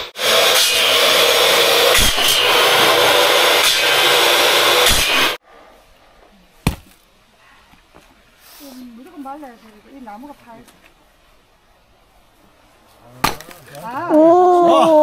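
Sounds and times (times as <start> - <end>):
power saw cutting wood: 0.0 - 5.4.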